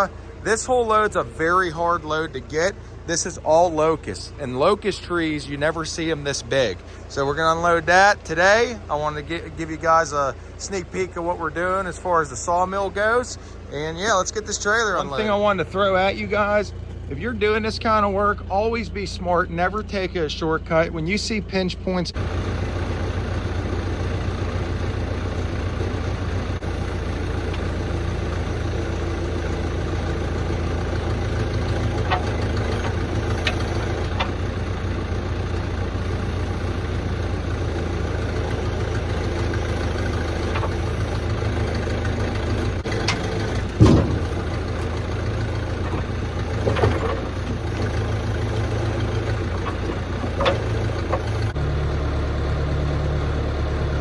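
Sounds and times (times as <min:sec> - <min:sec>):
heavy engine idling: 0:00.0 - 0:54.0
short clunks and knocks: 0:28.8 - 0:34.7, 0:38.2 - 0:51.6.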